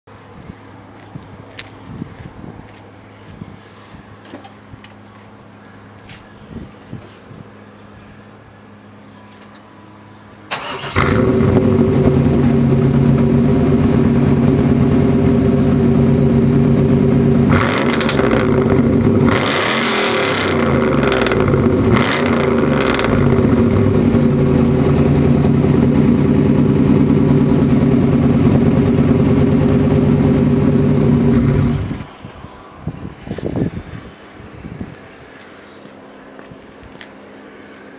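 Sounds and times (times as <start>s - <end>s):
car engine idling and revving: 10.6s - 32.2s.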